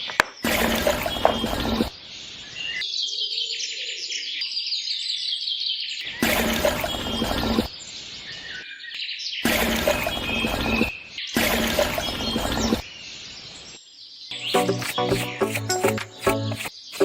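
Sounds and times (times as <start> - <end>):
small birds chirping: 6.8 - 17.0.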